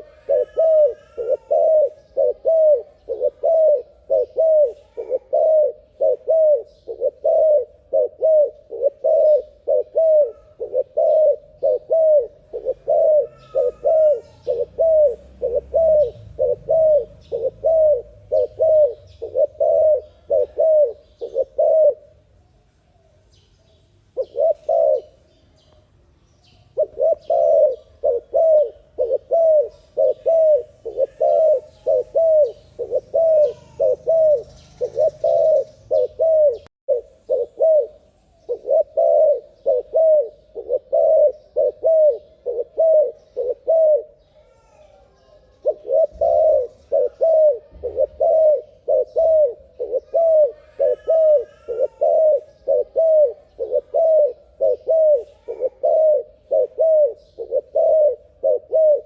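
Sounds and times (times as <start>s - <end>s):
dove cooing: 0.0s - 22.2s, 24.2s - 25.3s, 26.7s - 59.0s
faint high bird chirps: 8.3s - 58.9s.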